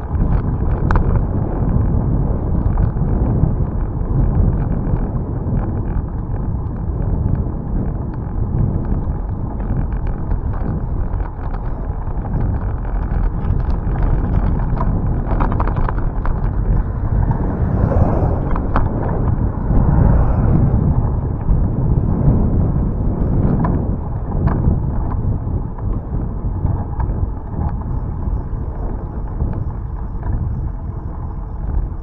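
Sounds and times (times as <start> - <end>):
bicycle clicks and rattles: 0.0 - 17.5
wind buffeting microphone: 0.0 - 32.0.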